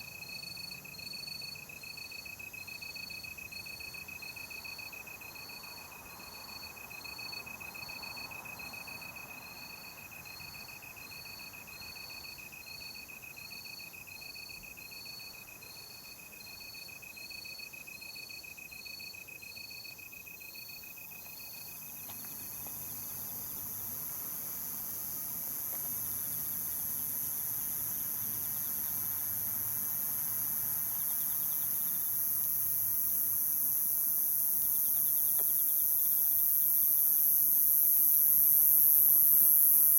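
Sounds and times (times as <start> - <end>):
cricket chirping: 0.0 - 39.9
cricket trilling: 3.1 - 39.9
high hissing insect drone: 21.3 - 39.9.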